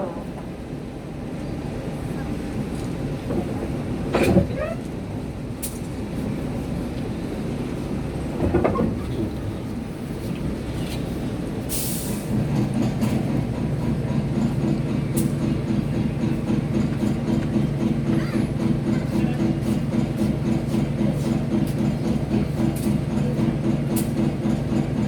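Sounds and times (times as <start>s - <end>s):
diesel locomotive idling: 5.0s - 25.0s.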